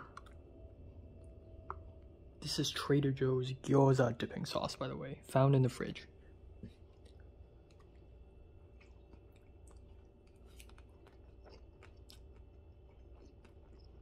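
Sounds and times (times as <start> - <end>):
faint chewing: 6.6 - 14.0.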